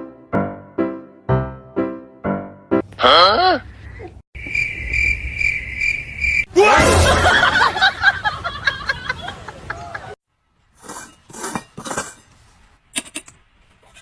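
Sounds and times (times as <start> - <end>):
cricket chirping: 4.4 - 6.5
rising and falling cries: 6.4 - 8.7.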